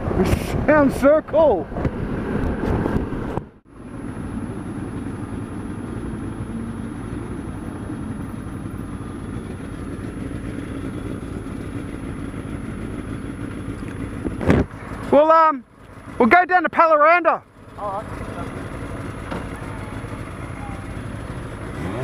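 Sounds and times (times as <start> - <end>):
road and wind noise: 0.0 - 22.0
motorcycle engine running: 3.7 - 22.0.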